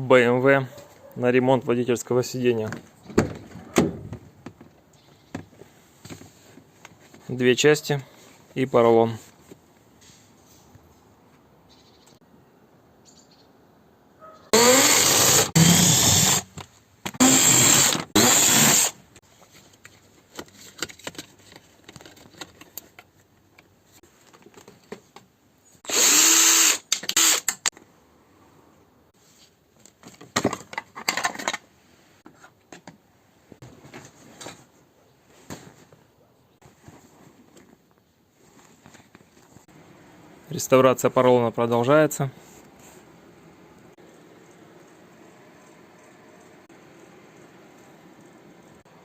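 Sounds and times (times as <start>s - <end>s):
small power tool bursts: 14.6s - 16.5s, 17.2s - 19.0s, 25.9s - 27.6s
light clicks and handling noise: 19.3s - 25.4s.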